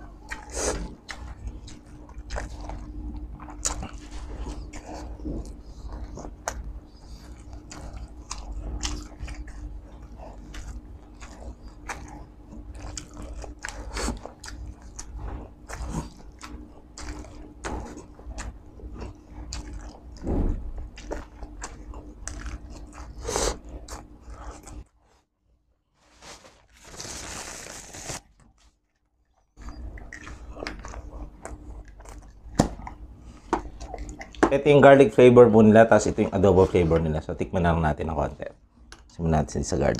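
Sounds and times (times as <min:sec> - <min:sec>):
person chewing wetly: 0:00.0 - 0:24.9, 0:28.9 - 0:34.6
paper napkin rustling: 0:26.0 - 0:28.4.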